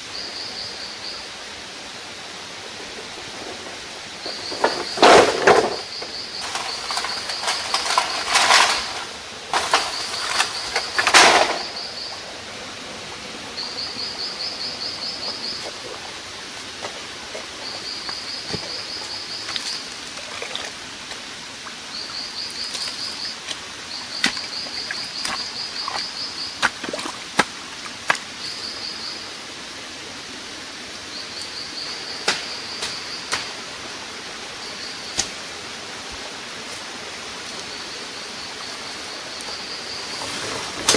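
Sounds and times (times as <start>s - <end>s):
steady hiss: 0.0s - 40.9s
loud rustling: 6.4s - 11.8s.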